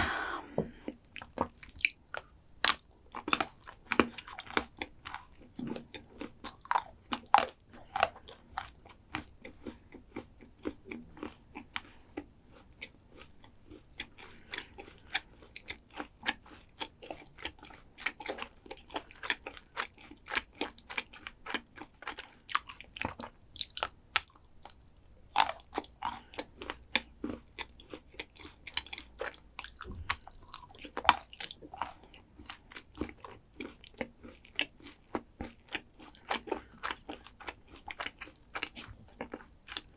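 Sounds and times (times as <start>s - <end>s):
crunchy eating and chewing: 0.9s - 39.9s.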